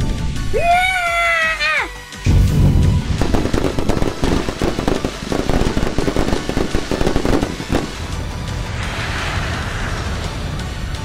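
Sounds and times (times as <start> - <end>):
fireworks crackling and popping: 2.3 - 11.0.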